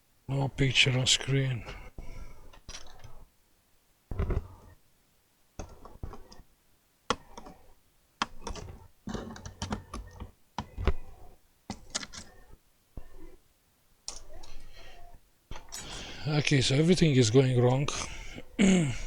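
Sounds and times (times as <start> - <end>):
laptop keys clicking: 5.6 - 6.5, 7.1 - 12.5.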